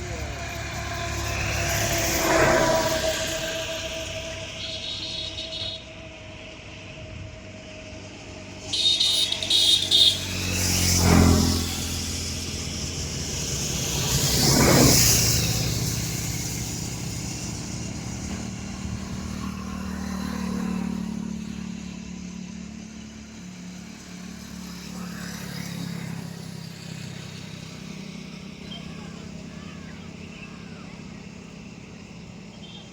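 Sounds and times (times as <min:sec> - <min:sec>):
low engine hum: 0:00.0 - 0:32.9
vehicles passing by: 0:00.0 - 0:32.9.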